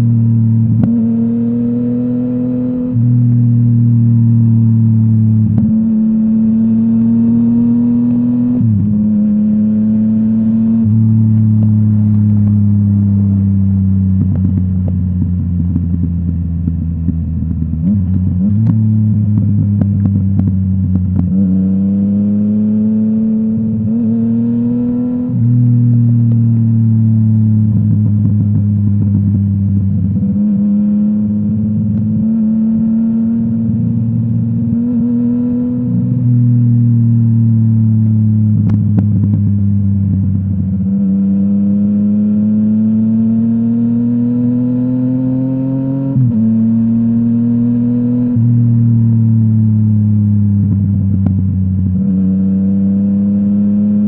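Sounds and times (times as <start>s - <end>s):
motorcycle engine revving: 0.0s - 54.0s
exhaust popping and crackling: 13.8s - 21.6s, 25.4s - 32.4s, 37.5s - 40.9s, 48.4s - 52.1s.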